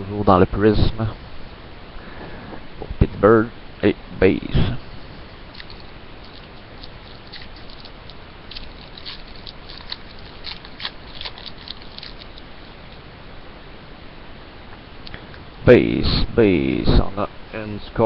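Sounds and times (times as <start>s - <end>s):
cards and wrappers crinkling: 5.5s - 12.5s.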